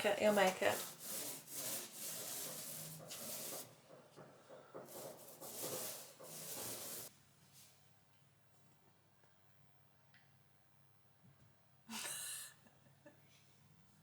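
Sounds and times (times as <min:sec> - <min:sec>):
paintbrush scratchy strokes: 0:00.2 - 0:07.7.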